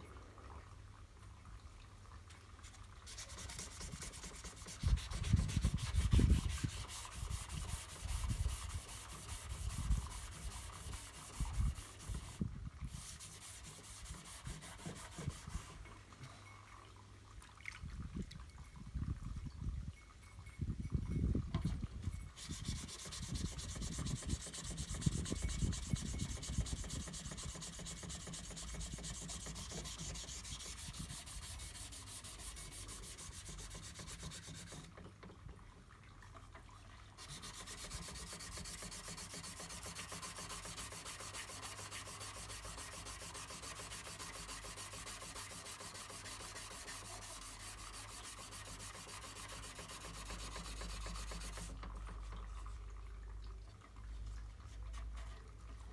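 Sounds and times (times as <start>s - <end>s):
sandpaper scraping body filler: 3.1s - 15.8s, 22.4s - 34.9s, 37.2s - 51.9s.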